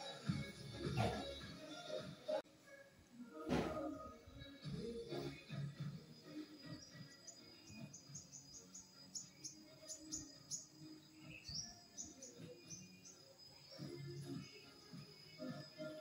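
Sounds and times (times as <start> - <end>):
small birds chirping: 4.0 - 16.0.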